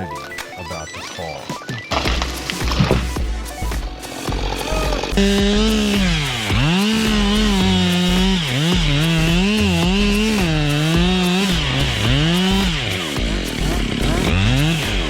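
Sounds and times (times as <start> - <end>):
chainsaw running at high revs: 1.9 - 15.0.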